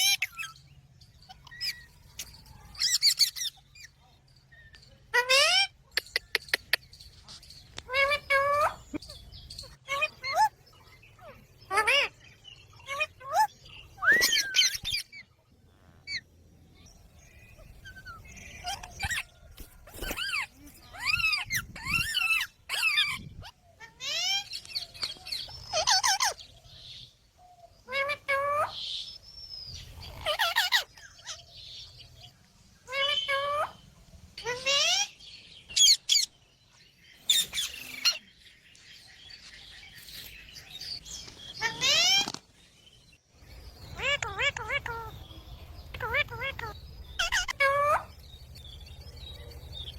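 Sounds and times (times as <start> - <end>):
parakeet chirping calls: 0.0 - 4.0, 7.8 - 15.4, 16.0 - 27.1, 29.8 - 36.4, 37.0 - 38.5, 39.2 - 42.2, 43.4 - 49.9
parrot squawking and whistling: 12.9 - 15.2, 46.0 - 48.1.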